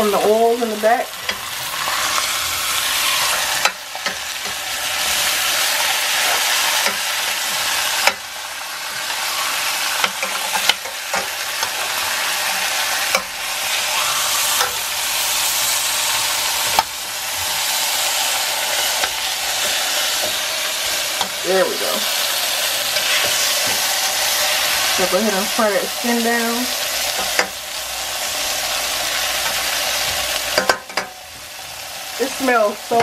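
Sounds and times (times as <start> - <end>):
fish sizzling in hot oil: 0.0 - 33.0
metal tongs clicking on pan: 3.6 - 4.6, 6.8 - 7.2, 8.0 - 8.3, 10.0 - 11.8, 13.1 - 13.3, 27.1 - 27.6, 30.5 - 31.2.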